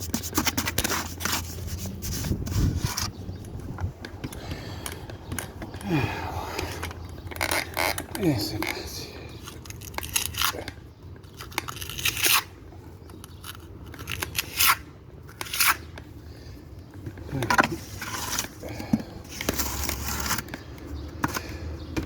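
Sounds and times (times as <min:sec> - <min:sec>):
trowel scraping mortar: 0:00.0 - 0:03.1, 0:14.0 - 0:15.9, 0:17.5 - 0:18.6, 0:19.3 - 0:20.6.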